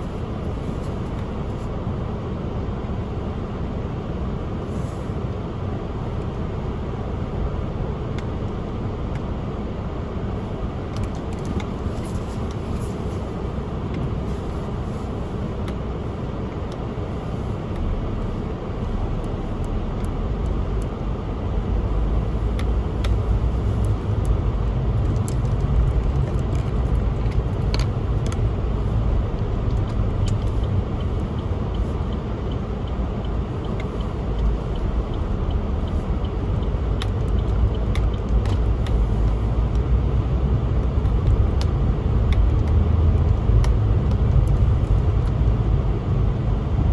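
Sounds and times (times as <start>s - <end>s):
car engine and road noise: 0.0s - 46.9s.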